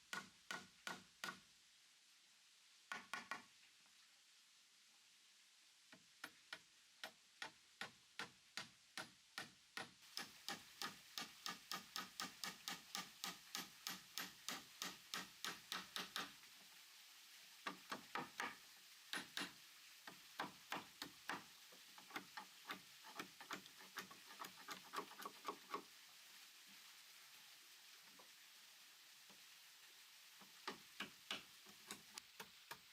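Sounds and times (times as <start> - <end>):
hand tool striking wood: 0.1 - 1.4, 6.2 - 16.3, 17.7 - 25.8, 30.6 - 32.1.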